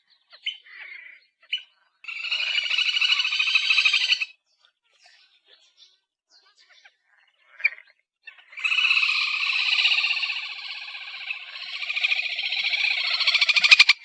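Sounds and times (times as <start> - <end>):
bird chirp: 0.0 - 14.0
grebe trilling call: 2.1 - 4.3, 7.4 - 14.0.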